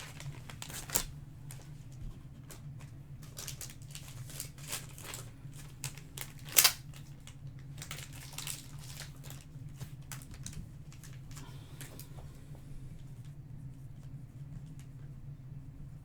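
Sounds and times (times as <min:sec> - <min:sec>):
loud wrapper crackle: 0:00.0 - 0:01.7, 0:02.4 - 0:11.5
card wrappers crinkling: 0:00.0 - 0:12.2
low steady hum: 0:00.0 - 0:16.0.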